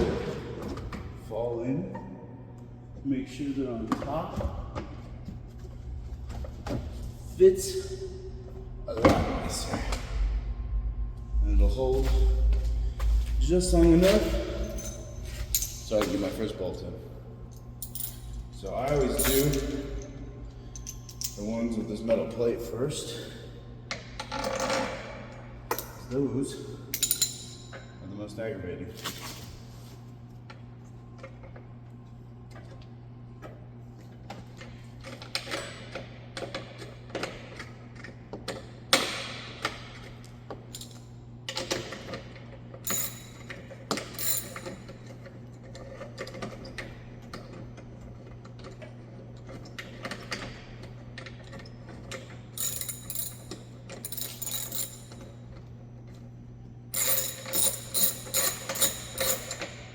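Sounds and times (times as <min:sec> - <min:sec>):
steady low hum: 0:00.0 - 0:59.9
metal bolts clicking and rattling: 0:14.0 - 0:16.5, 0:17.5 - 0:20.2, 0:26.9 - 0:27.9, 0:40.8 - 0:42.2, 0:42.8 - 0:46.6, 0:51.2 - 0:55.3, 0:57.0 - 0:59.9.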